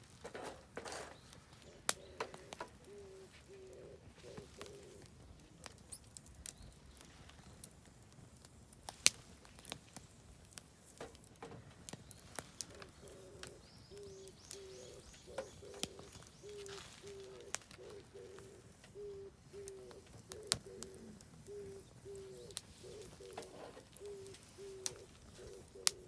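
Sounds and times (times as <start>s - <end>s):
campfire crackling and popping: 0.0s - 26.0s
faint high bird trill: 12.7s - 25.9s
bird repeating low notes: 12.7s - 26.0s.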